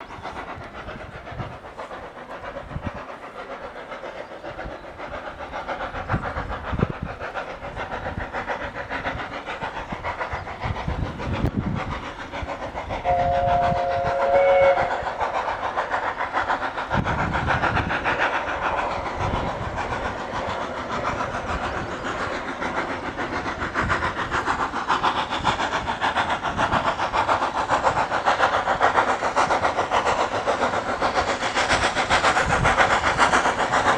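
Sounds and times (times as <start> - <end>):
train running on a climb: 0.0 - 33.9
two-note train whistle: 13.0 - 15.0.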